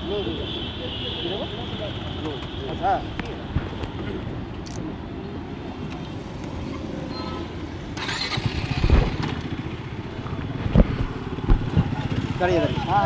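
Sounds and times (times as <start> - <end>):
motorcycle engine running: 8.0 - 12.8.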